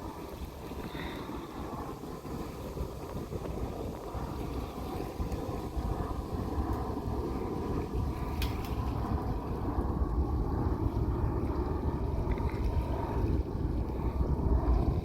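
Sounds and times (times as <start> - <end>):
low jet rumble: 0.0 - 15.0
wind buffeting microphone: 0.0 - 15.0.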